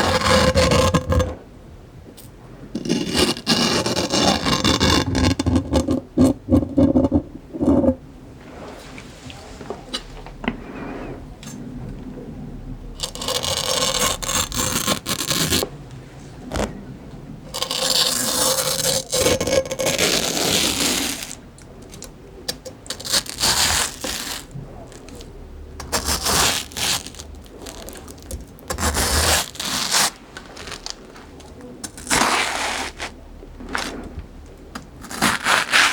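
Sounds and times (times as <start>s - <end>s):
crunchy fruit being chewed: 22.9s - 32.2s.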